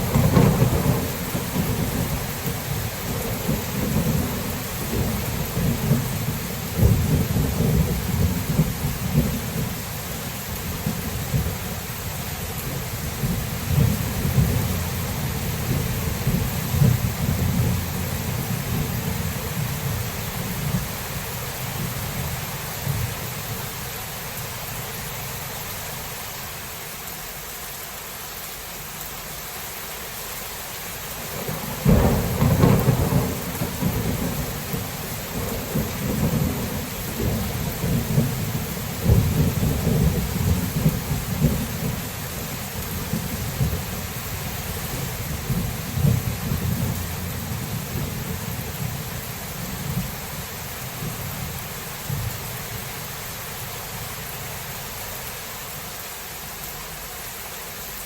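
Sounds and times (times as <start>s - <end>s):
thunderclap: 0.0s - 9.7s, 13.2s - 19.6s, 31.4s - 42.0s
thunder rumble: 0.0s - 11.8s, 12.6s - 23.6s, 31.3s - 52.9s
steady rain: 0.0s - 58.0s.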